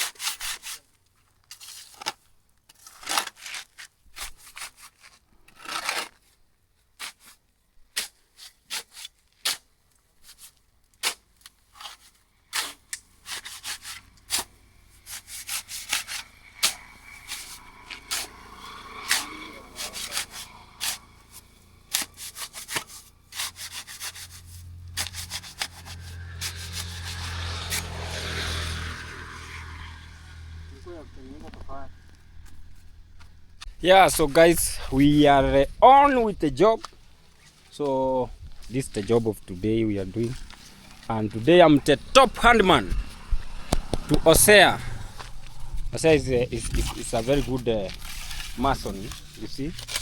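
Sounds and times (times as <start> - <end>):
low engine hum: 24.2 - 33.8, 38.3 - 50.0
trowel tapping and scraping bricks: 43.7 - 44.4.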